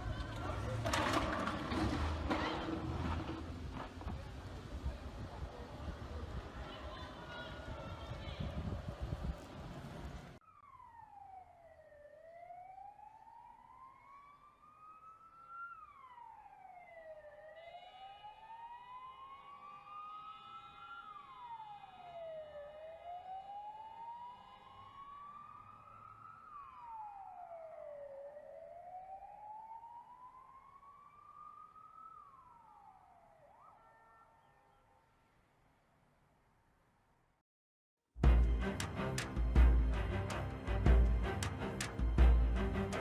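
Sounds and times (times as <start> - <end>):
siren wailing: 10.4 - 35.1.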